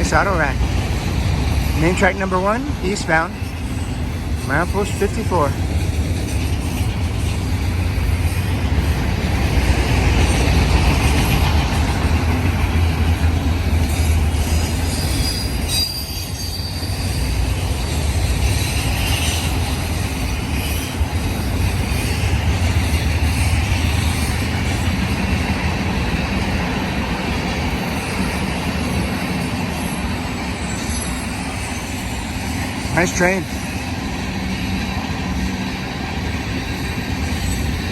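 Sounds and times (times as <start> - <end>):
freight train wheels clattering: 0.0 - 37.9
faint wheel squeal: 14.4 - 17.4.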